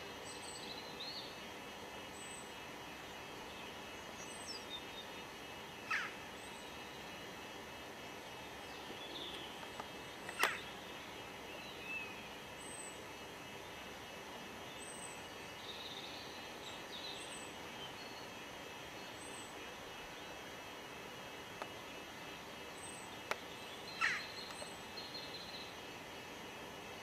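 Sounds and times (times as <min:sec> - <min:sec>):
outdoor background noise: 0:00.0 - 0:27.0
small birds chirping: 0:00.0 - 0:27.0
sharp click: 0:10.2 - 0:10.6.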